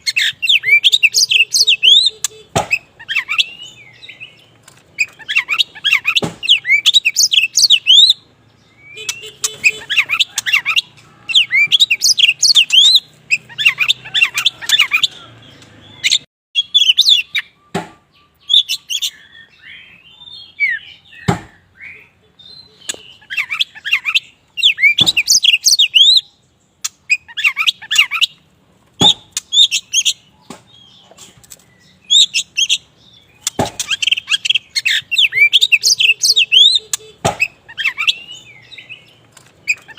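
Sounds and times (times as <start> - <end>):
bird singing whistles and chirps: 0.0 - 26.4, 31.7 - 39.9
sharp knocks: 2.5 - 2.8, 6.2 - 6.5, 17.7 - 18.0, 21.2 - 21.6, 29.0 - 29.4, 33.4 - 34.0, 37.2 - 37.5.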